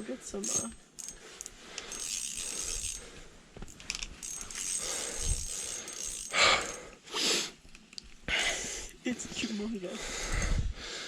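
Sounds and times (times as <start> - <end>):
fishing reel clicking and ratcheting: 0.4 - 3.1, 3.7 - 6.9.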